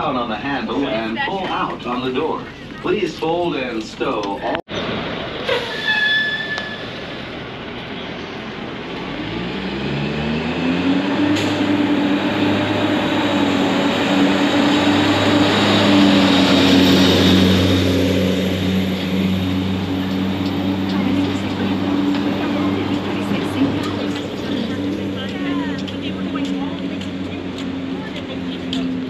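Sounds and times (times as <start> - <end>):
constant vehicle rumble: 0.0 - 29.0
vehicle drive hum: 6.8 - 29.0.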